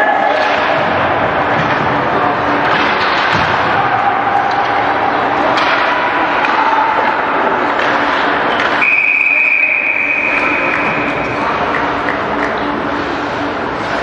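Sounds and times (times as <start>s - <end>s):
arena crowd noise: 0.0s - 14.0s
faint knocks of sticks and puck: 5.5s - 8.8s.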